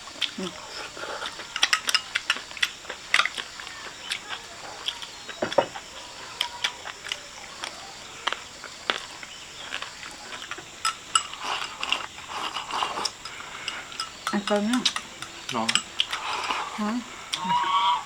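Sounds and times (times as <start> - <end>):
chewing: 0.0 - 18.0
insect chirring: 0.0 - 18.0
utensils clicking against bowls: 1.2 - 4.3, 10.3 - 17.0.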